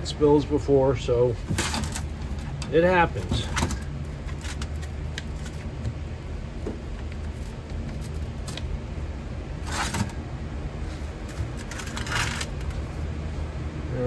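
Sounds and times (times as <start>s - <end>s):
furnace rumbling: 0.0s - 14.0s.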